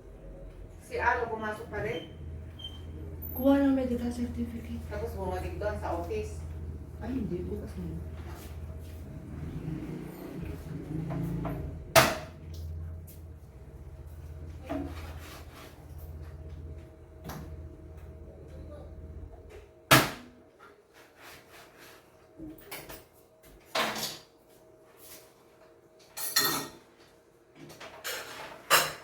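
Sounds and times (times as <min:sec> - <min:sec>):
low hum: 0:00.0 - 0:19.7.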